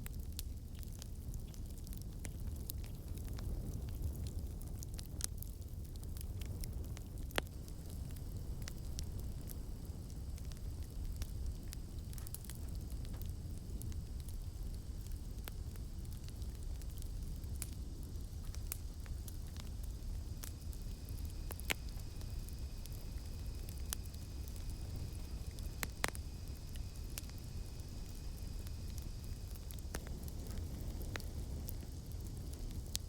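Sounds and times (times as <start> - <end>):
campfire crackling and popping: 0.0 - 33.0
cicadas droning: 7.5 - 33.0.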